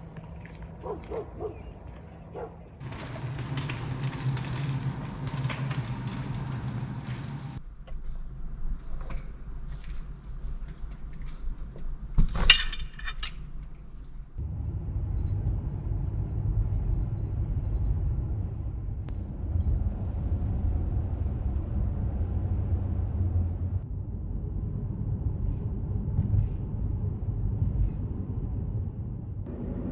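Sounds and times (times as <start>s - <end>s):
car driving rumble: 0.0s - 29.9s
sharp metallic clatter: 2.8s - 14.4s
small jingling clicks: 2.8s - 14.4s.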